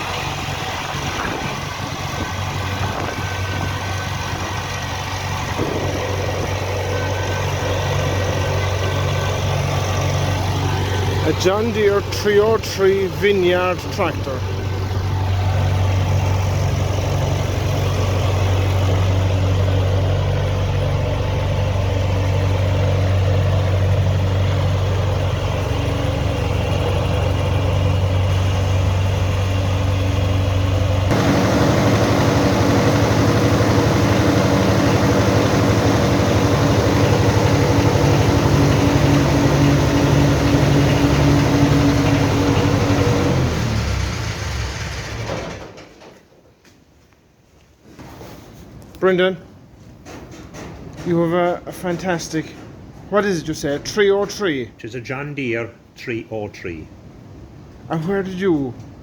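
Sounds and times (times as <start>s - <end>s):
tractor diesel engine running: 0.0s - 45.8s.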